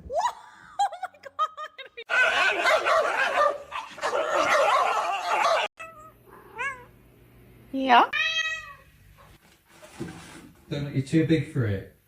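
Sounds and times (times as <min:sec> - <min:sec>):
dog yelping: 0:02.1 - 0:06.9.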